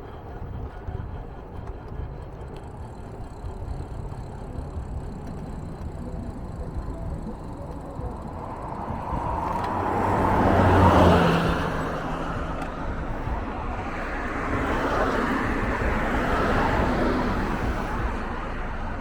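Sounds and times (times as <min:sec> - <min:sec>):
vehicle passing: 0:00.0 - 0:19.0.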